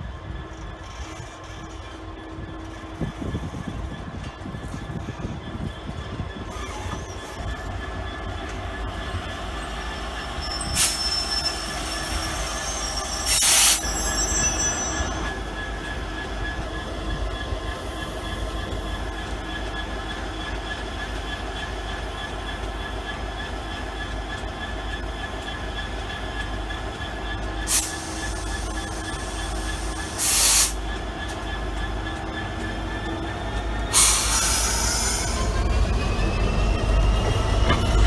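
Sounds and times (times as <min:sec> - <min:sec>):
freight train rumbling past: 0:00.0 - 0:38.0
high wheel squeal: 0:04.7 - 0:21.4, 0:27.3 - 0:38.0.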